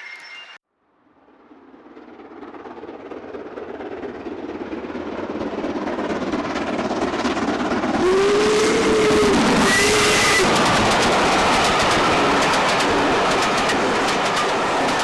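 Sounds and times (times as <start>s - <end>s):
train rumbling: 3.7s - 15.0s
train whistle: 8.0s - 14.6s.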